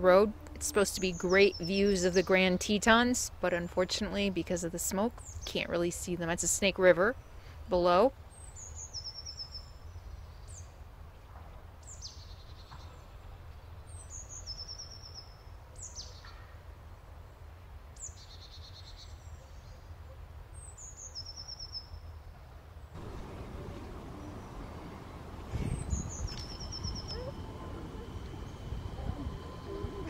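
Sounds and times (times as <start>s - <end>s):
songbirds singing: 0.8s - 3.0s, 23.0s - 30.0s
low rumble: 23.0s - 30.0s.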